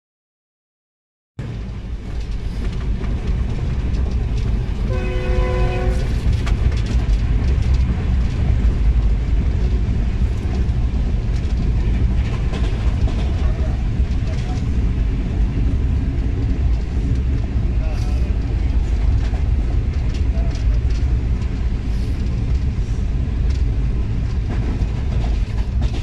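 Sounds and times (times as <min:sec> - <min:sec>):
train running rumble: 0:01.4 - 0:26.0
train horn: 0:04.9 - 0:06.2.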